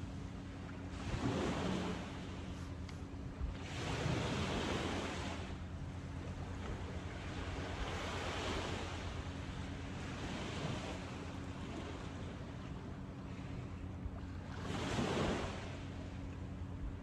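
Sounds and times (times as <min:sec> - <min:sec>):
ocean surf on beach: 0:00.9 - 0:02.7, 0:03.5 - 0:05.6, 0:07.3 - 0:12.3, 0:14.5 - 0:15.9.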